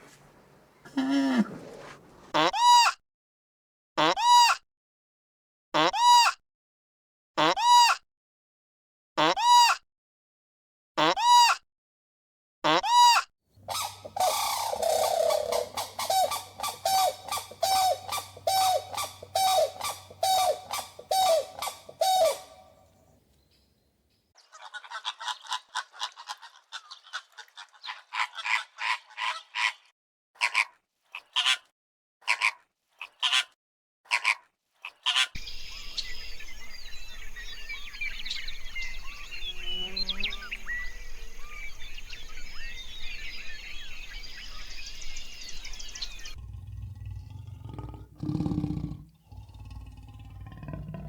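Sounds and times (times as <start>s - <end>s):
birds honking: 13.6s - 23.0s
birds chattering: 13.6s - 23.2s, 35.4s - 51.0s
birdsong: 13.6s - 24.6s, 35.4s - 51.0s.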